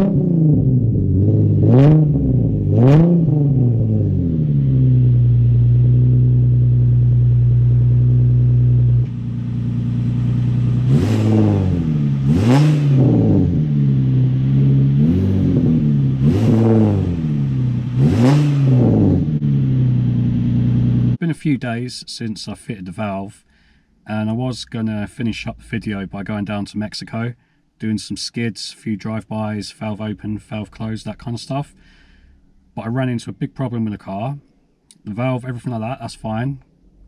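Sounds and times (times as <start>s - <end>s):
car engine revving and idling: 0.0s - 21.2s, 29.9s - 33.1s.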